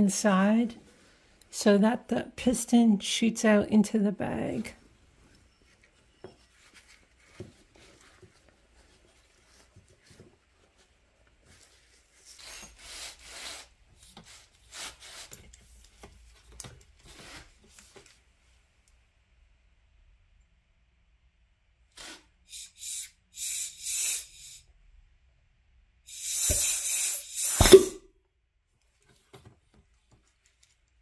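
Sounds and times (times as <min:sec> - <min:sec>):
faint handling rubbing and knocks: 0:05.2 - 0:12.8.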